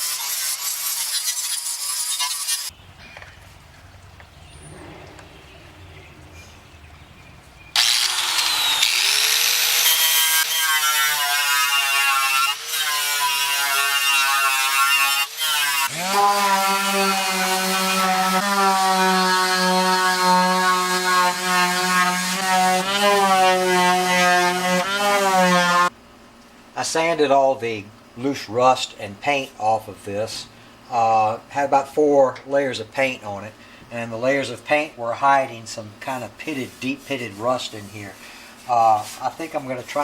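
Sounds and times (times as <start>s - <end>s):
power sander motor whine: 7.7s - 10.4s.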